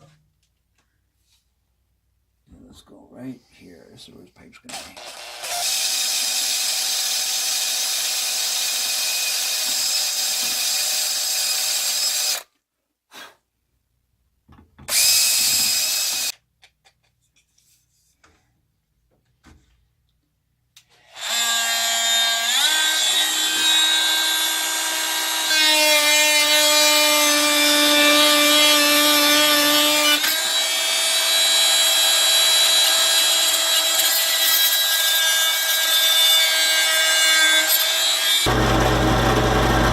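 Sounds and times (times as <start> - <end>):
rotary tool whining on wood: 14.9 - 16.3, 20.9 - 39.9.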